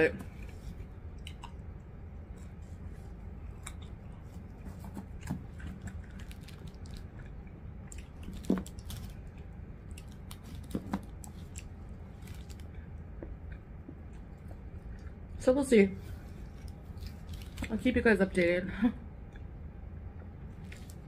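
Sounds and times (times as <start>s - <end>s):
steady low hum: 0.0s - 21.0s
close-up crunchy chewing: 2.3s - 15.2s, 16.1s - 17.7s
plastic wrapper crinkling: 6.0s - 7.2s, 8.1s - 9.3s, 9.9s - 12.7s, 16.6s - 17.8s.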